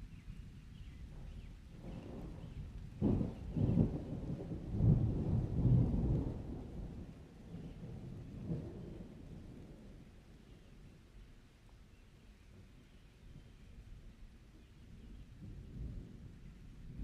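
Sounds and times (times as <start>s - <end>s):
thunder rumbling: 1.8s - 10.1s.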